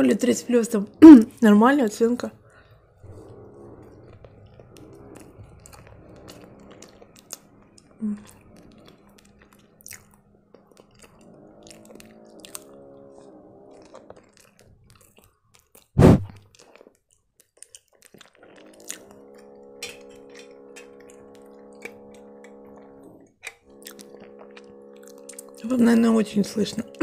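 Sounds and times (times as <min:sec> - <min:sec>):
person chewing pastry: 0:02.4 - 0:25.7
wet mouth clicks: 0:04.0 - 0:12.7
loud thump: 0:16.0 - 0:16.4.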